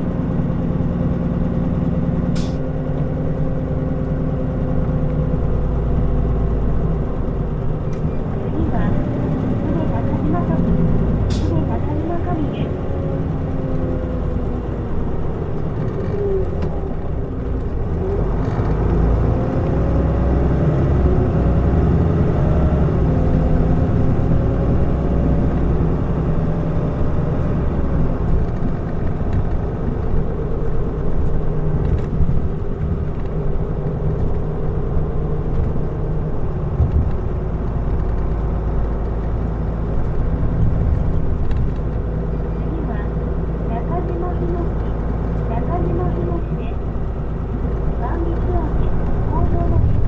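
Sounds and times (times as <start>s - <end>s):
bus engine drone: 0.0s - 50.0s
road noise: 0.0s - 50.0s.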